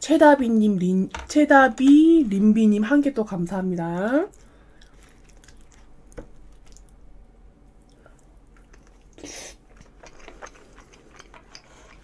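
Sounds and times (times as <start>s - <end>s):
person chewing food: 4.3s - 7.0s, 7.7s - 12.0s.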